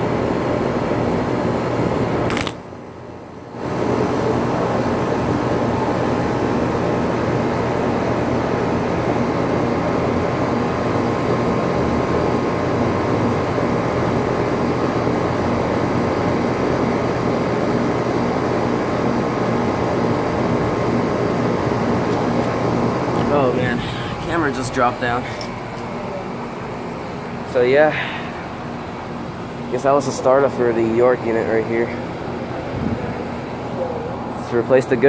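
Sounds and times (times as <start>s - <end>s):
compressor hum: 0.0s - 35.0s
condenser fan rushing: 0.0s - 35.0s.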